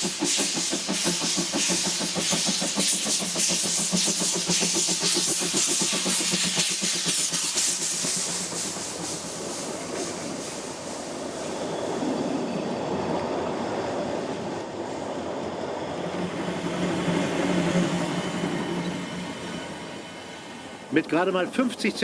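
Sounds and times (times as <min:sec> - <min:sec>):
steam train running: 0:00.0 - 0:22.0.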